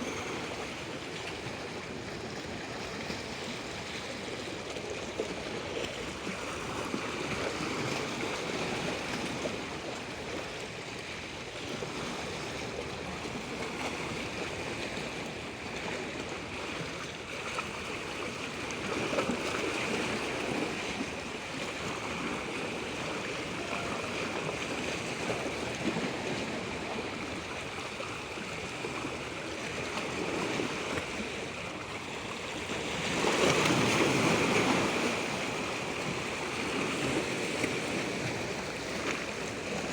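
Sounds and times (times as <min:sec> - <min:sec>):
water rushing: 0:17.6 - 0:39.9.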